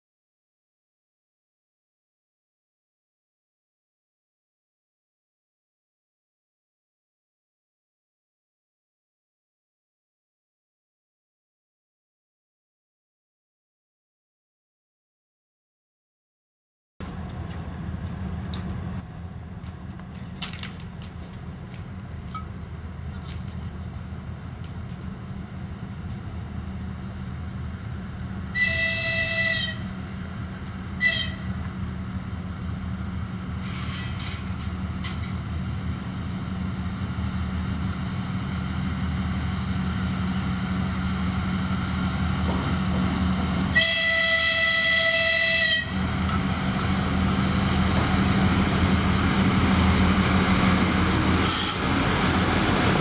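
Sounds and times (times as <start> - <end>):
wheel and rail noise: 17.0 - 43.8, 45.7 - 53.0
diesel locomotive drone: 17.0 - 53.0
locomotive horn blasts: 28.5 - 30.0, 31.0 - 31.6, 43.7 - 46.1.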